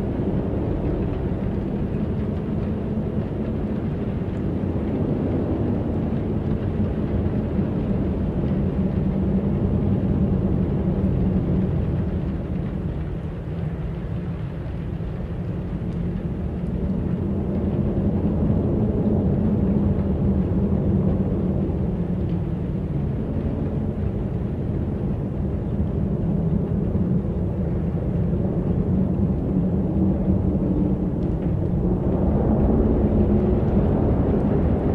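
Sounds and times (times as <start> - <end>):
wind blowing: 15.5 - 34.9.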